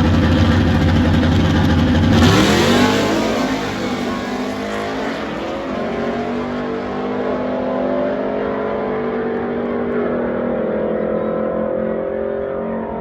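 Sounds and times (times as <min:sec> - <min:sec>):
truck engine running at high revs: 0:00.0 - 0:11.4.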